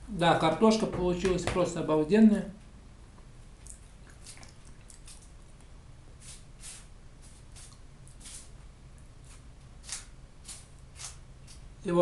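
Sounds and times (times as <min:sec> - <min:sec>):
man chewing with wet smacks: 0:03.6 - 0:05.8, 0:07.6 - 0:08.2.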